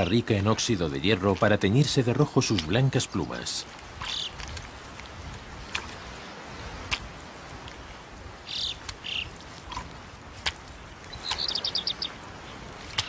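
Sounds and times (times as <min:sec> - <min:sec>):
faint outdoor hiss: 0:00.0 - 0:13.0
bird chirps: 0:11.1 - 0:12.2.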